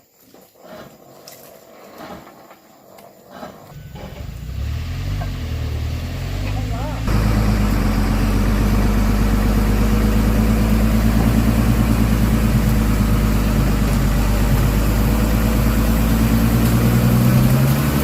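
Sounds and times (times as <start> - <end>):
heavy truck engine throbbing: 3.7 - 18.0.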